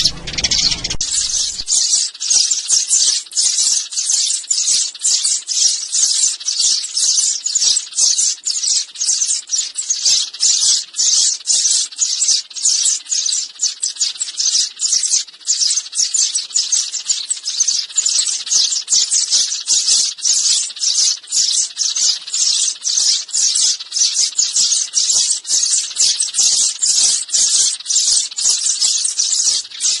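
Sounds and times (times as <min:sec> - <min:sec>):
sparrows chirping: 0:00.0 - 0:30.0.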